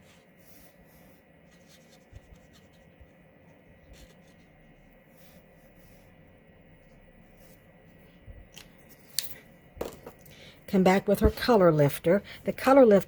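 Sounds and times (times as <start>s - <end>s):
marker rubbing on paper: 0.0s - 3.2s, 3.8s - 6.1s.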